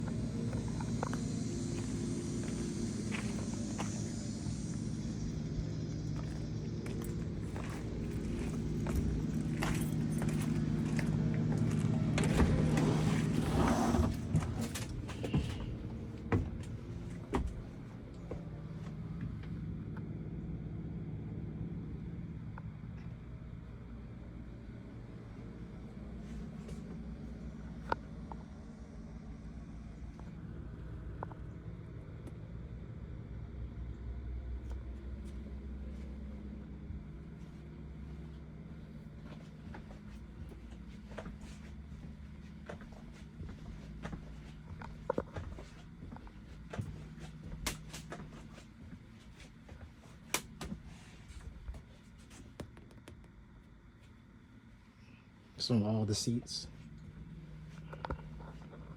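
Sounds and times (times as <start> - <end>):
bus engine idling: 0.0 - 19.3
bus engine humming: 0.0 - 22.4, 32.8 - 52.3.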